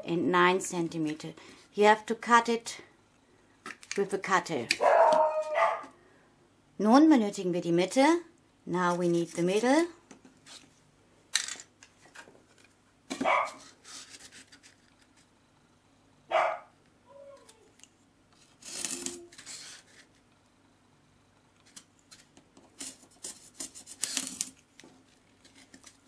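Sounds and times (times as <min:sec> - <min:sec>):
craft tools scraping styrofoam: 0:13.5 - 0:15.2, 0:18.4 - 0:20.2, 0:22.2 - 0:24.6.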